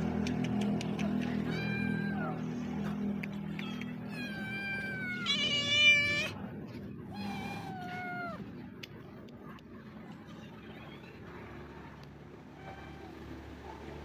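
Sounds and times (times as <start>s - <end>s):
cat meowing: 1.2s - 2.4s, 3.6s - 6.4s, 7.1s - 8.4s.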